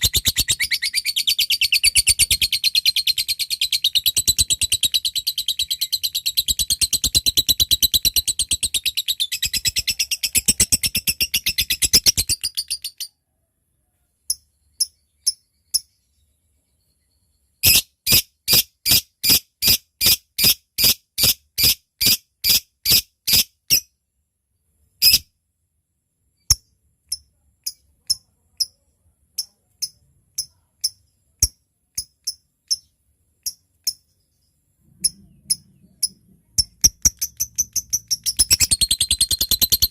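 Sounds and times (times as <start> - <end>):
lovebird rapid trill: 0.0 - 13.1, 35.0 - 39.9
lovebird ticking chirps: 0.0 - 13.1, 26.5 - 28.8, 29.4 - 34.2, 35.0 - 39.9.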